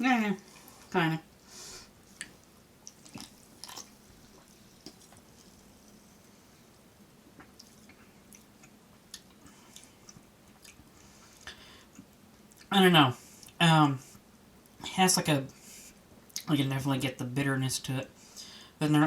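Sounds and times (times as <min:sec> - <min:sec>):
faint chewing: 0:02.0 - 0:12.7.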